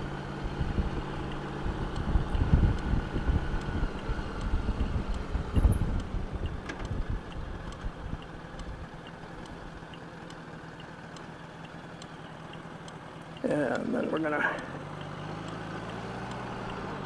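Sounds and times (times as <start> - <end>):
motorcycle engine humming: 0.0 - 17.0
wind buffeting microphone: 0.4 - 8.9.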